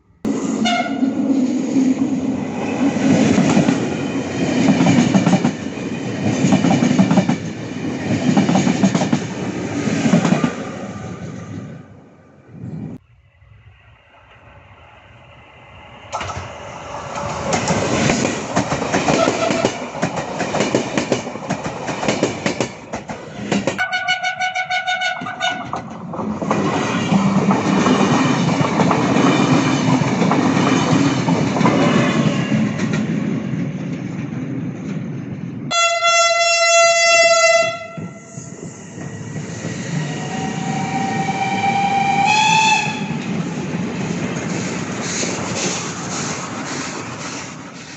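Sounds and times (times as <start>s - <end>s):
train passing: 0.0s - 47.9s
train horn blasts: 0.6s - 1.2s, 19.1s - 19.8s, 23.8s - 25.8s, 35.7s - 38.5s, 41.2s - 43.3s
rising whine: 12.0s - 18.4s.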